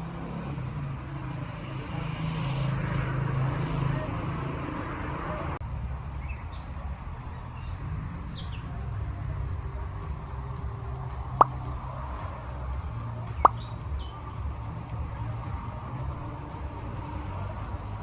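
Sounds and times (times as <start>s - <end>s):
steady low rumble: 5.6s - 18.0s.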